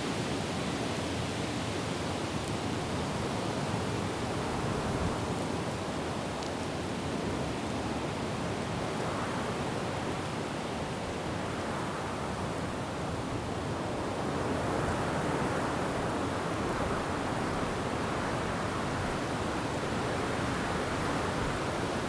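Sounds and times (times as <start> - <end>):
wind blowing through trees: 8.7 - 22.0.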